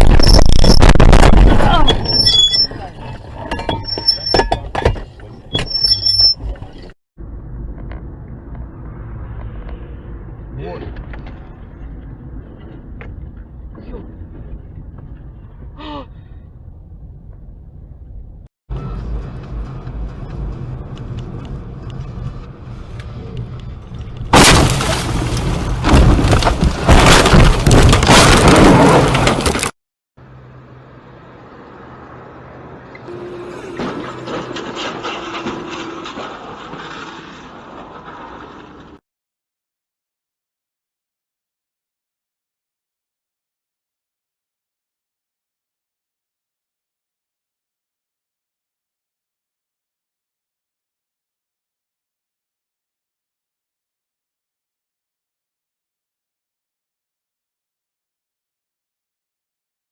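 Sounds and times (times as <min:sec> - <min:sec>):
loud vehicle crash: 0:00.0 - 0:03.5, 0:24.3 - 0:29.7, 0:33.1 - 0:39.0
road and engine rumble: 0:00.0 - 0:39.0
thin high tone: 0:33.1 - 0:36.2.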